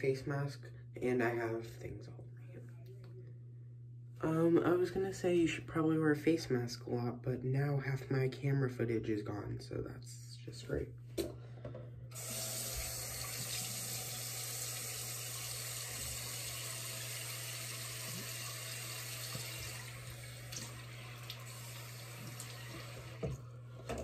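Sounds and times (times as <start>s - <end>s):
faucet running into sink: 12.1s - 24.0s.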